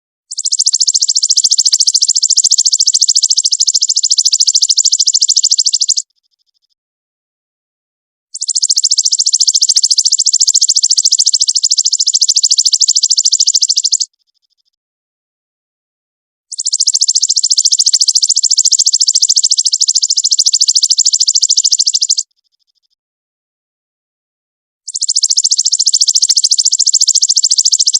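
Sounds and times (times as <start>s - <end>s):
songbird high-pitched trill: 0.3s - 6.6s, 8.4s - 14.7s, 16.5s - 23.0s, 24.9s - 27.9s.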